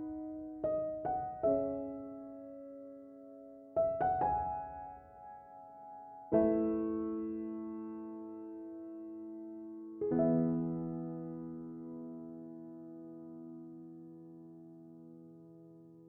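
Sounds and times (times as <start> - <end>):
slow soft piano music: 0.0 - 16.0.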